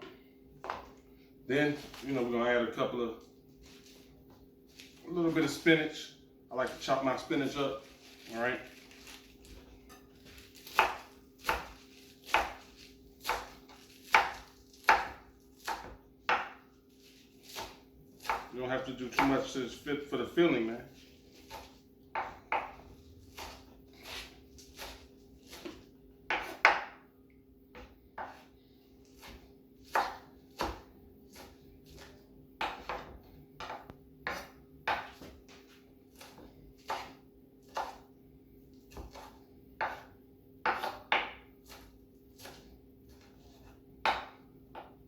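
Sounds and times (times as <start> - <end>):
knife chopping on cutting board: 10.2 - 16.7, 17.4 - 18.5, 19.1 - 19.5, 21.4 - 27.0, 27.7 - 38.1, 38.8 - 45.0.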